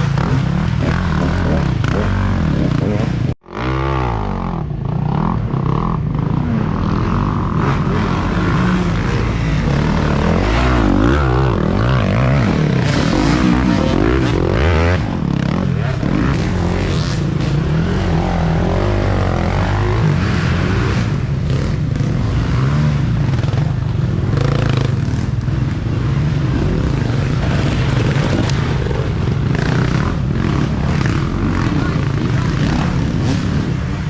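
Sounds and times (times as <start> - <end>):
dirt bike engines revving: 0.0 - 34.0.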